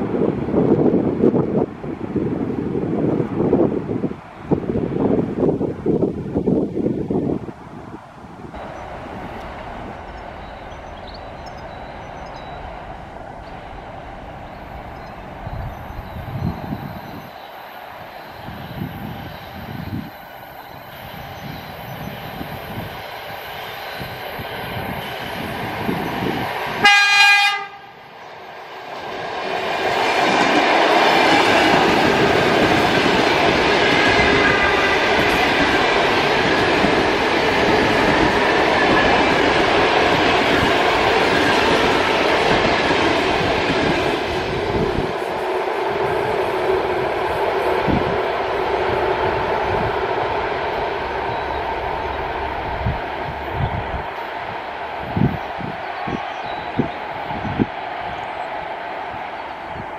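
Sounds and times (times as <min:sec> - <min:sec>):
electric train rumble: 0:00.0 - 0:59.9
train horn blast: 0:26.8 - 0:28.0, 0:34.1 - 0:35.6, 0:45.1 - 0:53.8.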